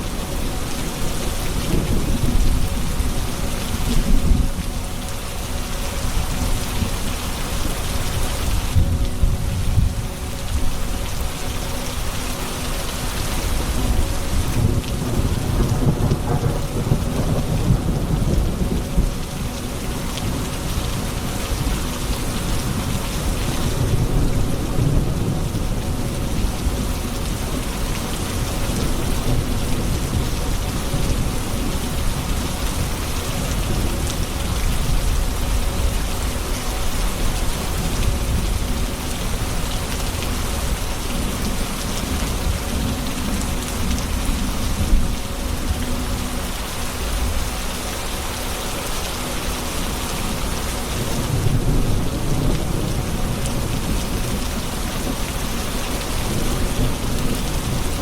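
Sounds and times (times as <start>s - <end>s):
heavy rain: 0.0s - 58.0s
low rolling thunder: 0.5s - 5.1s, 13.3s - 36.5s, 51.0s - 58.0s.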